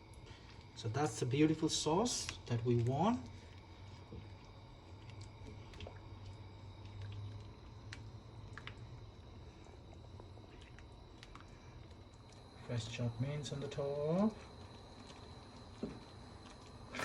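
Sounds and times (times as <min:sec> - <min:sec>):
low steady hum: 0:00.0 - 0:17.0
sauce bubbling with soft pops: 0:02.2 - 0:12.6, 0:14.3 - 0:17.0.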